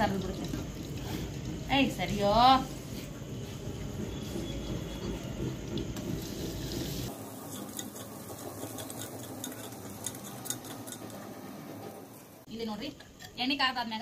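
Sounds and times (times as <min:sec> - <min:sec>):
paste sizzling in hot oil: 0:05.9 - 0:12.2
spoon scraping clicks: 0:07.5 - 0:11.2.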